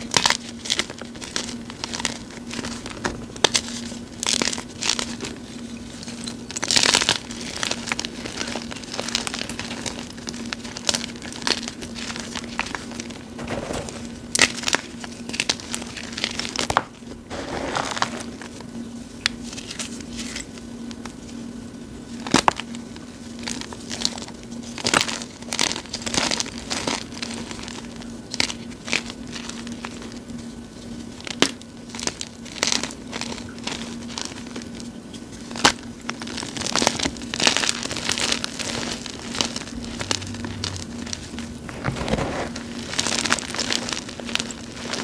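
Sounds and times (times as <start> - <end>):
chalk crunching and crumbling: 17.3 - 18.6, 40.0 - 43.2.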